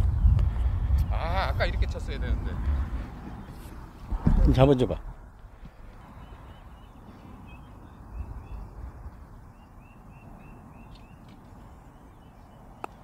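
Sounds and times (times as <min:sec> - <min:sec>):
wind rumble on microphone: 0:00.0 - 0:12.7
bird chirping: 0:05.5 - 0:13.0.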